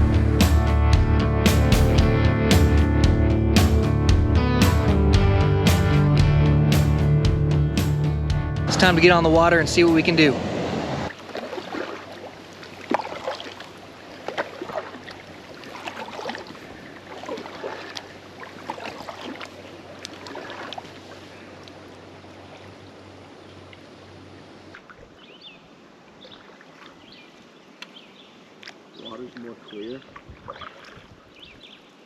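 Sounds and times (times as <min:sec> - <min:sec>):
kayak paddle splashing: 0:11.0 - 0:25.4, 0:26.0 - 0:32.0
water sloshing around hull: 0:11.1 - 0:27.8, 0:28.4 - 0:32.0.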